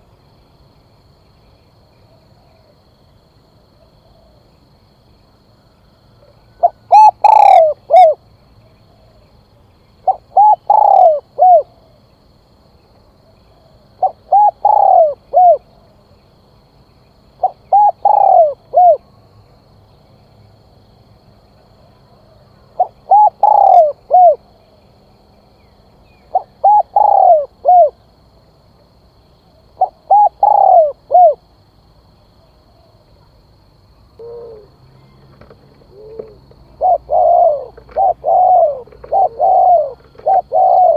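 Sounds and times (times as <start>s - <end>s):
dove cooing: 6.2s - 8.2s, 10.0s - 11.9s, 14.0s - 15.8s, 17.4s - 19.0s, 22.8s - 24.4s, 26.3s - 28.0s, 29.8s - 31.5s, 34.2s - 40.9s
fainter lower dove coo: 6.2s - 8.2s, 10.1s - 11.8s, 13.5s - 15.7s, 17.4s - 19.0s, 22.8s - 24.4s, 26.3s - 28.0s, 29.8s - 31.4s, 34.2s - 40.9s.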